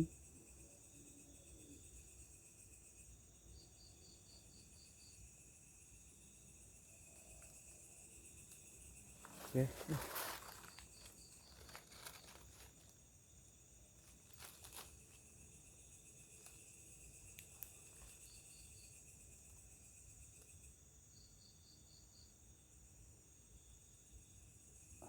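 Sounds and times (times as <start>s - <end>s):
insects trilling: 0.0s - 25.0s
faint ticks or rustles: 6.9s - 20.8s.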